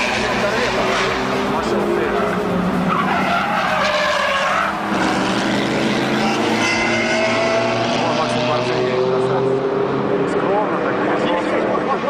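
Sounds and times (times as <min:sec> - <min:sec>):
car tyres squealing: 0:00.0 - 0:08.2.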